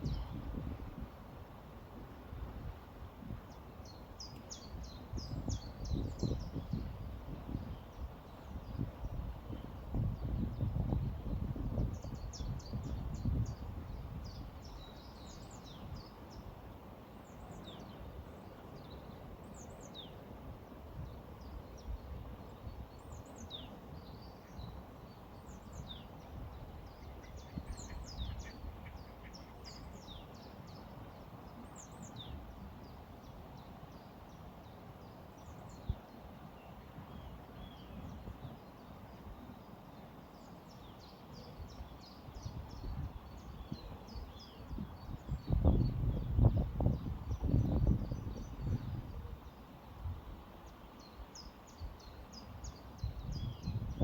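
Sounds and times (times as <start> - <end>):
small songbirds chirping: 0.0 - 1.0, 2.2 - 54.0
river water flowing: 14.6 - 21.7, 22.3 - 37.6.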